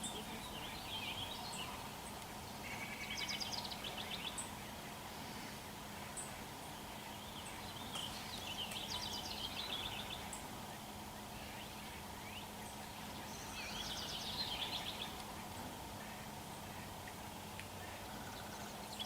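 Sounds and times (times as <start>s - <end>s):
small bird singing trills: 11.4s - 15.2s.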